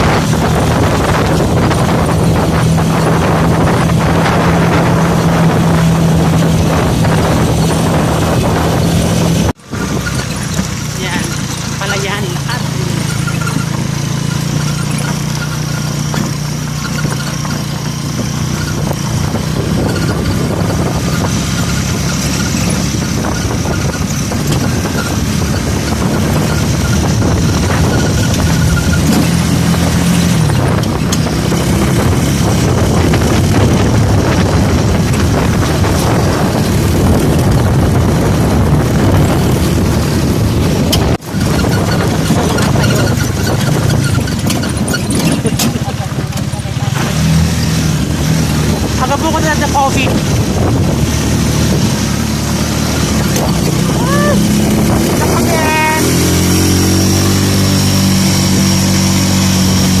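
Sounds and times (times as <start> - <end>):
vehicle engine running: 0.0 - 60.0
wind and road noise: 0.0 - 60.0.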